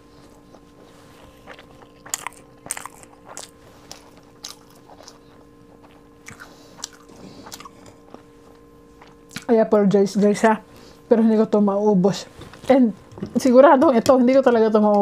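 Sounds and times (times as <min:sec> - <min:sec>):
person chewing food: 0:00.0 - 0:09.5.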